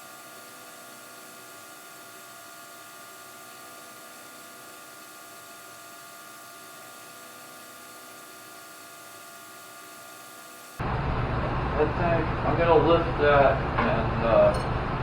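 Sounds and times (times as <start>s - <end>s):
faint hum tones: 10.8s - 15.0s.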